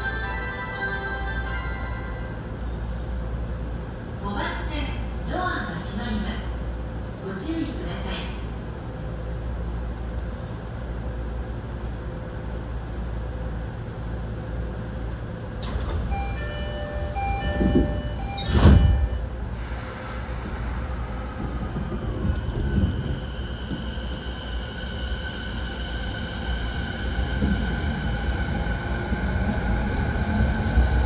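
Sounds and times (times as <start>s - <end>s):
train equipment humming: 0.0s - 31.0s
train doors closing with thud: 15.0s - 24.3s.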